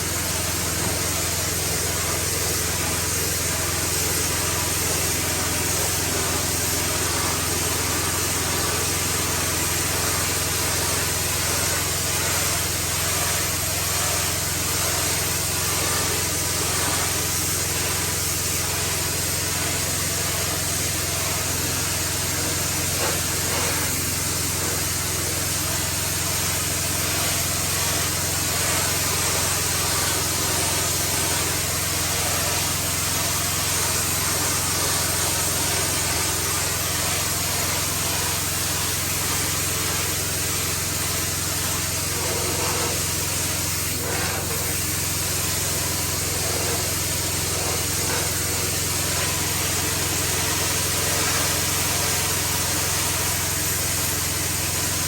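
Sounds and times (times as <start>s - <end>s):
high-pressure water spray hiss: 0.0s - 55.0s
pressure washer motor drone: 0.0s - 55.0s.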